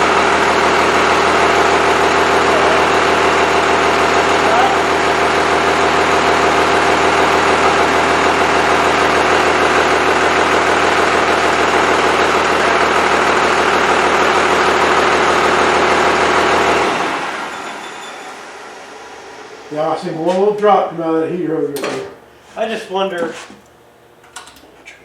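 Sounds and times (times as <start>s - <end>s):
diesel engine idling: 0.0s - 17.6s.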